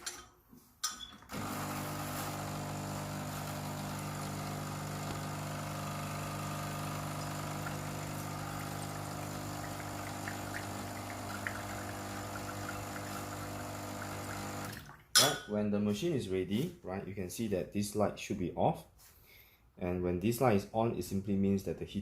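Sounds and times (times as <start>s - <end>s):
espresso machine pump humming: 1.3s - 14.8s.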